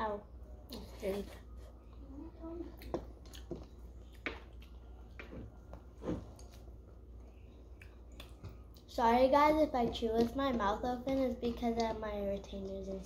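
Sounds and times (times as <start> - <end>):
open-mouthed chewing: 2.7 - 5.4
soft wet mouth smacks: 7.8 - 8.8.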